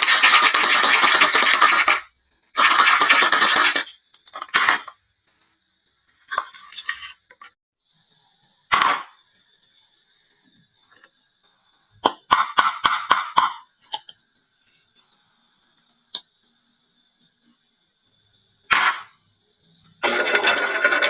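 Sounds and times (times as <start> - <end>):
marbles clacking on wooden run: 20.0 - 21.0.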